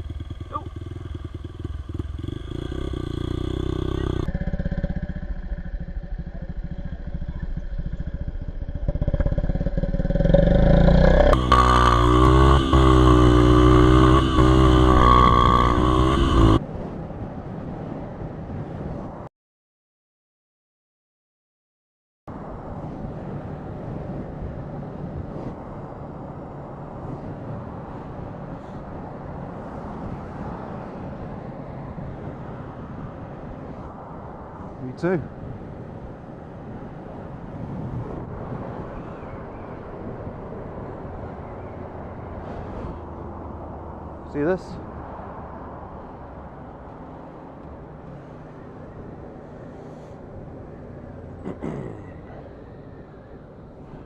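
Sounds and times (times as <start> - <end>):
low hum: 0.0 - 17.4
vehicle engine and road noise: 0.0 - 19.3, 22.3 - 54.0.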